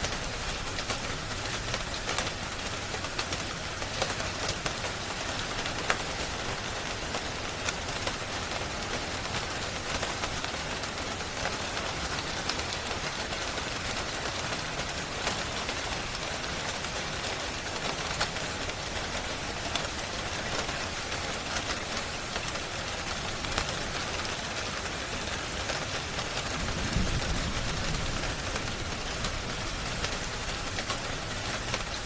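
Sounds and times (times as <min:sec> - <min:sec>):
sharp ticks and pops: 0:00.0 - 0:05.0, 0:25.7 - 0:32.0
steady rain falling: 0:00.0 - 0:32.0.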